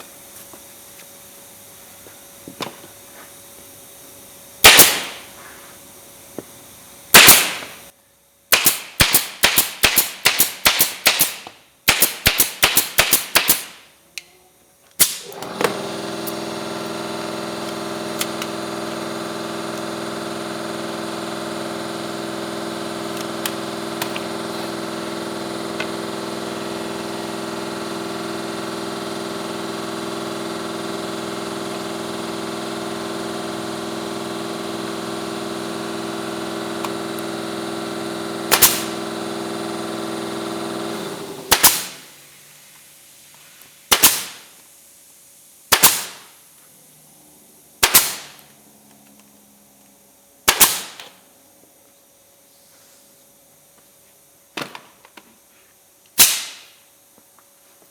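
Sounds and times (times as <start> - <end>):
nail gun banging: 4.6 - 5.3, 7.1 - 7.8, 8.5 - 13.8, 15.0 - 42.1, 43.9 - 44.5, 45.7 - 46.3, 47.8 - 48.4, 50.5 - 51.2
workshop motor humming: 15.0 - 42.1.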